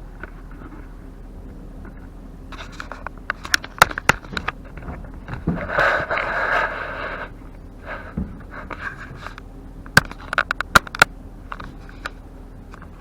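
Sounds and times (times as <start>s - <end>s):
sharp knocks and clicks: 1.9s - 6.3s, 7.5s - 13.0s
rustling scrape: 2.5s - 9.4s.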